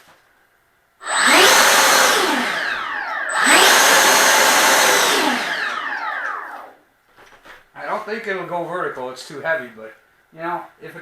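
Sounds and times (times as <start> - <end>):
electric ducted fan whine: 1.0 - 9.7.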